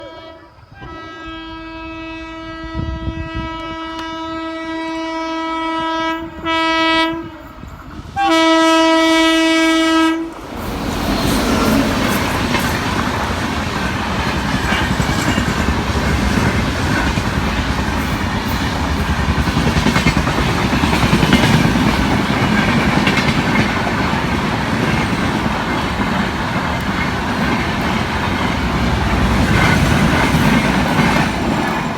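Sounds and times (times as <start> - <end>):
train horn blasts: 0.0 - 10.4
train passing at speed: 0.0 - 31.9.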